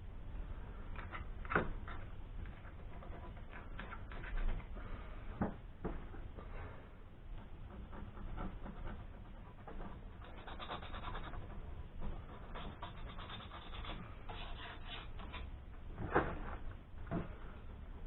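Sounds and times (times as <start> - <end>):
scrubbing rust off metal: 7.4 - 15.9.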